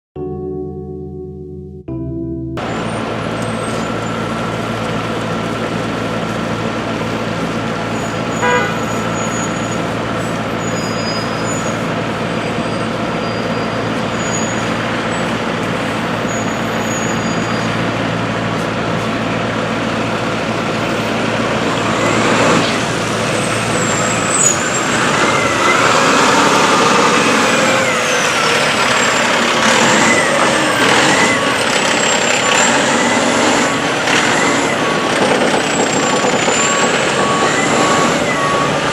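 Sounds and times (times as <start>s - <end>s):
diesel engine idling: 2.6s - 38.9s
high-pitched squeals and hiss: 6.4s - 17.9s, 20.9s - 38.9s
horn toot: 8.2s - 9.8s.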